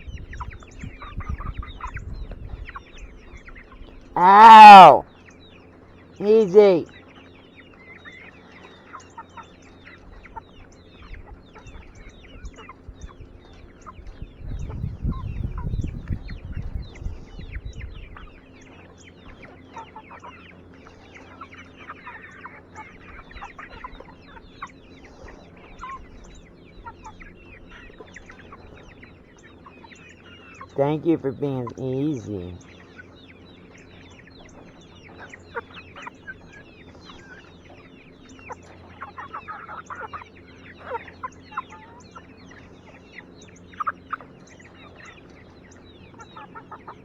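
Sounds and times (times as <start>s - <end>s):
chickens clucking: 46.1s - 47.0s.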